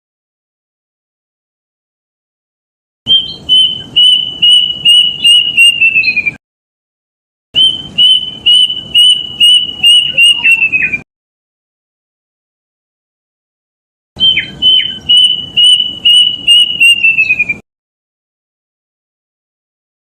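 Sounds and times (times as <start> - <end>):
cuckoo whistled calls: 3.1 - 6.4, 7.6 - 11.0, 14.2 - 17.6.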